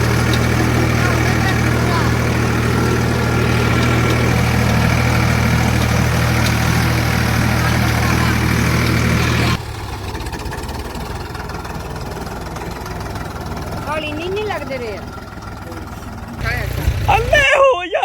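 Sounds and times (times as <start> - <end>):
tractor engine humming: 0.0 - 18.0.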